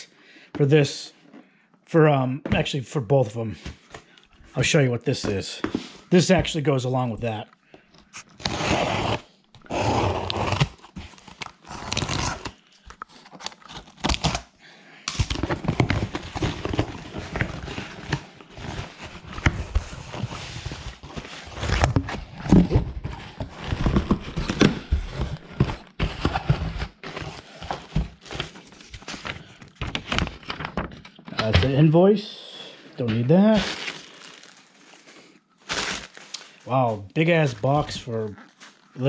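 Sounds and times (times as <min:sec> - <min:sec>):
cardboard box being unpacked: 0:08.2 - 0:14.5, 0:15.1 - 0:31.6, 0:33.1 - 0:36.7.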